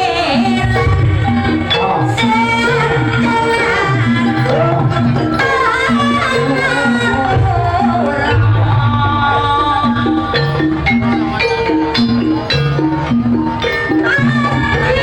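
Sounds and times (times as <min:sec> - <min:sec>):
drumming: 0:00.0 - 0:15.0
gong-chimes repeating pattern: 0:00.0 - 0:15.0
wavering melody line: 0:00.0 - 0:15.0.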